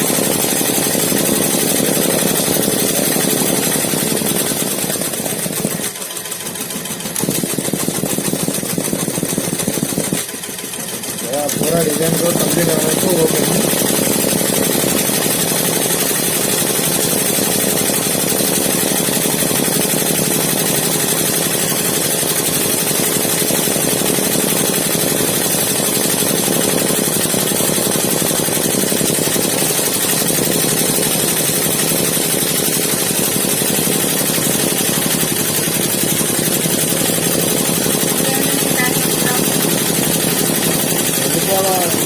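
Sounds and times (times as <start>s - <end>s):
embroidery machine running: 0.0s - 42.0s.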